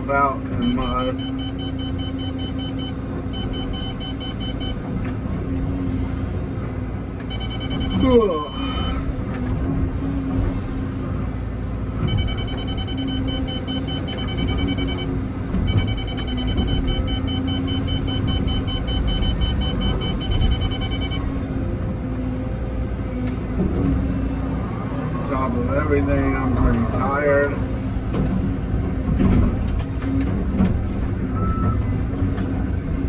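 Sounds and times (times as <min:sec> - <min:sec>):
excavator diesel engine running: 0:00.0 - 0:33.0
electronic beeping alarm: 0:00.6 - 0:04.8, 0:07.3 - 0:09.0, 0:12.1 - 0:21.3, 0:31.2 - 0:32.0.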